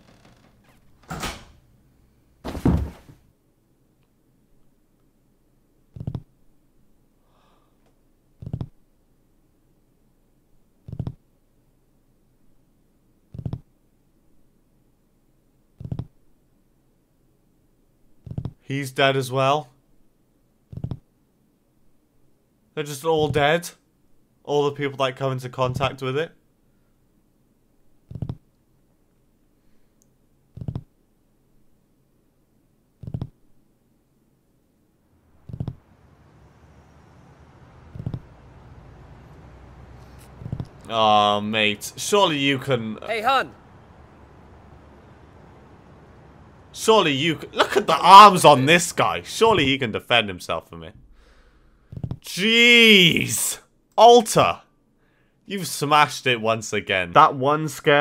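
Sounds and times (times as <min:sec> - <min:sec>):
faint steady hiss: 0:00.0 - 0:58.0
thuds of clustered knocks: 0:35.4 - 0:35.8, 0:37.8 - 0:38.5, 0:40.0 - 0:40.9.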